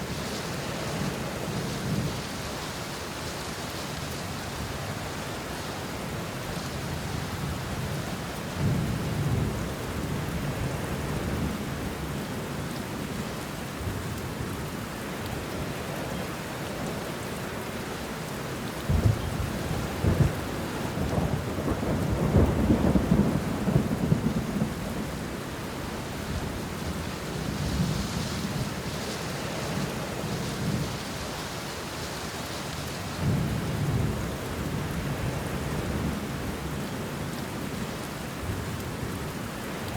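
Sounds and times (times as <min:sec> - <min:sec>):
rain falling on leaves: 0:00.0 - 0:39.9
thunder rumbling and cracking: 0:18.9 - 0:25.3.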